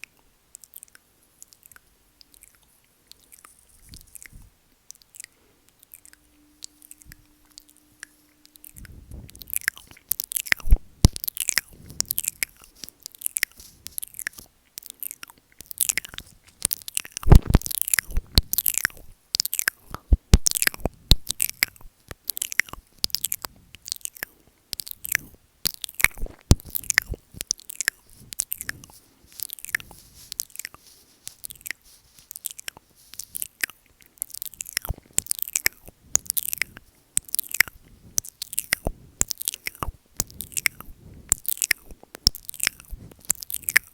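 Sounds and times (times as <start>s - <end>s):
wet mouth licking and smacking: 0.0s - 43.9s.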